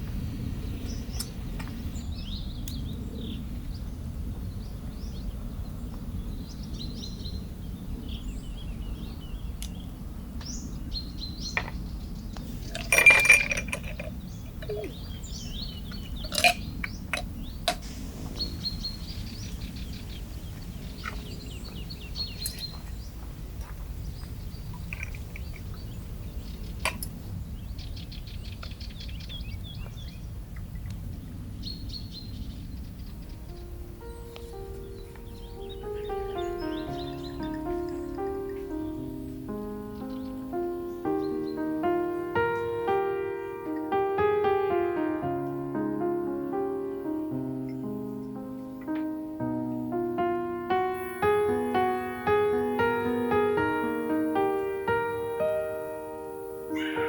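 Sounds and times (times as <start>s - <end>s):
birds chirping: 0.0s - 57.0s
low steady background noise: 0.0s - 57.0s
clinking: 12.6s - 14.9s, 16.2s - 17.3s, 24.8s - 25.6s.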